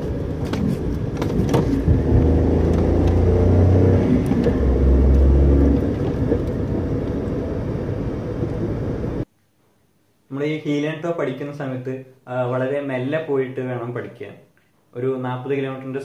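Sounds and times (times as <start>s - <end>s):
car engine revving: 0.0s - 9.2s
road noise: 0.0s - 9.3s.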